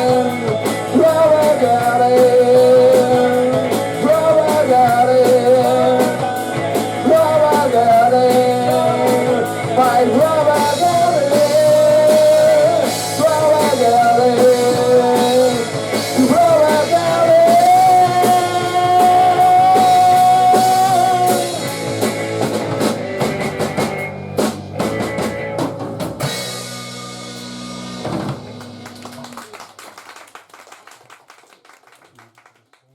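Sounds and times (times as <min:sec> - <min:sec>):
person singing: 0:00.0 - 0:21.7, 0:22.6 - 0:24.2
drum and cymbal hits: 0:00.0 - 0:29.0
rock band playing: 0:00.0 - 0:29.9.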